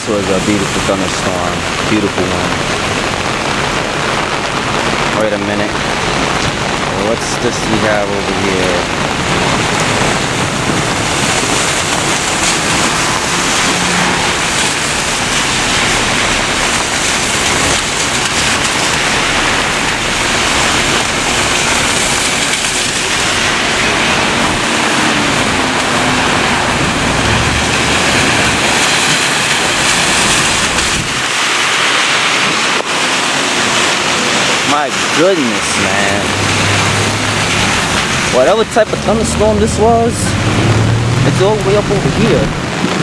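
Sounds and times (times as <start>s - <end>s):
rain falling: 0.0s - 43.0s.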